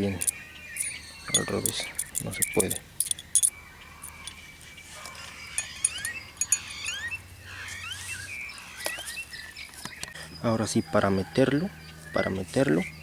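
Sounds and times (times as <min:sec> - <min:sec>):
birds chirping: 0:00.0 - 0:13.0
light clinks: 0:00.1 - 0:04.4, 0:05.5 - 0:07.2.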